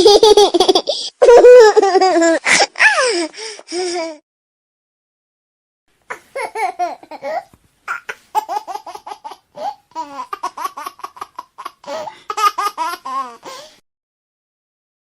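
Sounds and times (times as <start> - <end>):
baby laughing: 0.0 - 3.3, 6.1 - 13.7.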